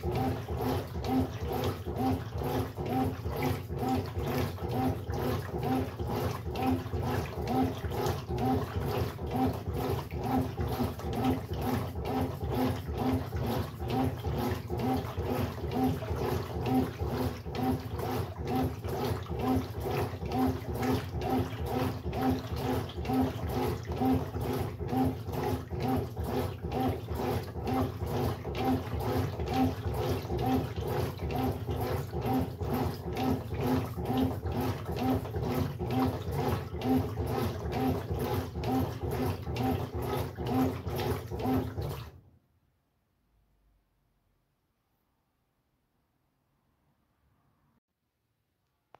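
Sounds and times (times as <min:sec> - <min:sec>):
washing machine churning water: 0:00.0 - 0:42.3.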